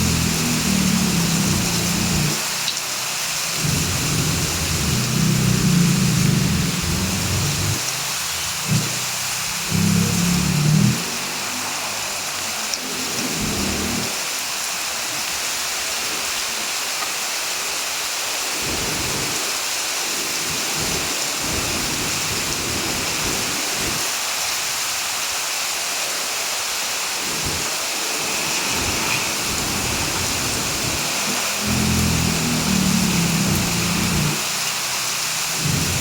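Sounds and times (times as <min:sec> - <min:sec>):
heavy rain: 0:00.0 - 0:36.0
low rumbles: 0:03.6 - 0:07.8.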